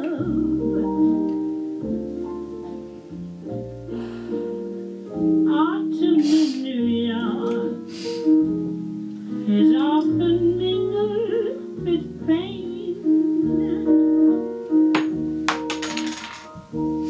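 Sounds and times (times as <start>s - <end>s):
woman singing: 0.0s - 1.3s, 5.4s - 7.9s, 9.3s - 14.6s
piano accompaniment: 0.0s - 17.0s.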